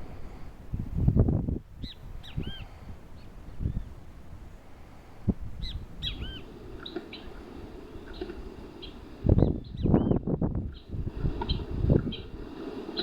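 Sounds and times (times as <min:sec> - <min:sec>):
birds calling: 0:01.8 - 0:04.0, 0:05.6 - 0:13.0.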